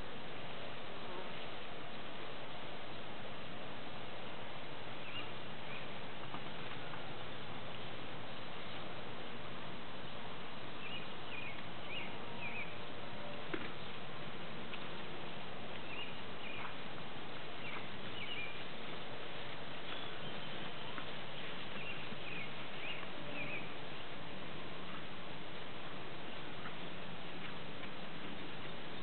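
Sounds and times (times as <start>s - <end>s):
outdoor background hiss: 0.0s - 29.0s
small birds chirping: 5.0s - 6.4s, 10.8s - 12.9s, 15.7s - 16.8s, 17.4s - 23.8s.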